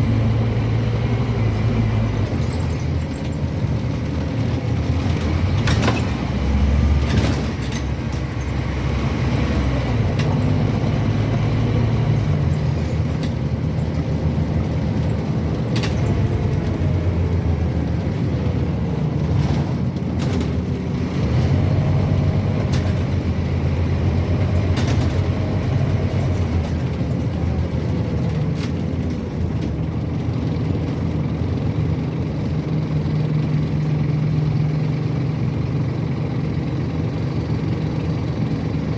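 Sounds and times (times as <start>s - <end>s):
bus diesel engine droning: 0.0s - 38.9s
bodywork knocks and rattles: 12.0s - 21.3s, 22.0s - 31.2s.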